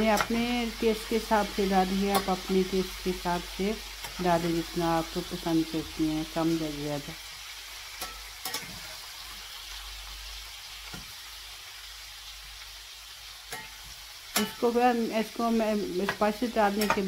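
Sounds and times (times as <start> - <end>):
chicken sizzling in hot oil: 0.0 - 17.0
metal spatula clicking against pan: 14.3 - 14.6, 16.1 - 17.0.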